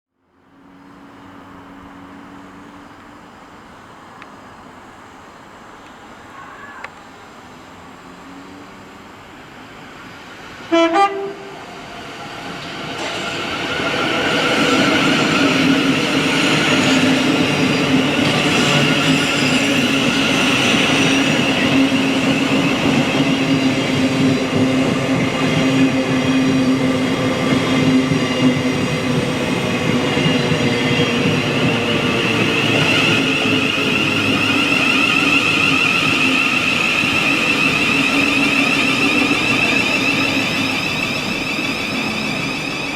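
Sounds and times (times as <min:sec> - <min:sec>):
train passing on rails: 0:00.2 - 0:42.9
train horn blasts: 0:10.6 - 0:11.7.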